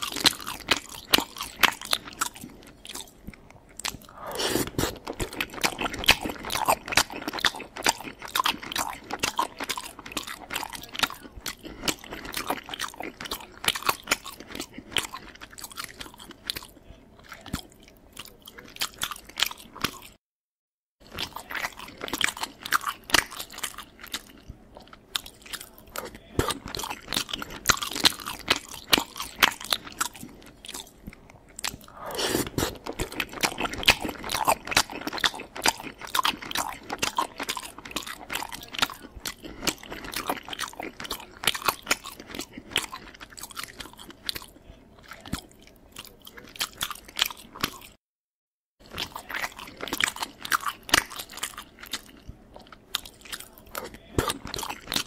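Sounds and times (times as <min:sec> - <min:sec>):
person chewing and crunching food: 0:00.0 - 0:20.2, 0:21.0 - 0:48.0, 0:48.8 - 0:55.0.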